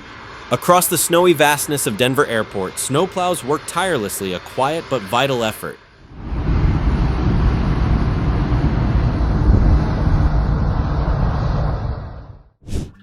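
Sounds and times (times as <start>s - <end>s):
snowplow trucks rumbling: 0.0s - 12.5s
wind noise: 6.0s - 13.0s.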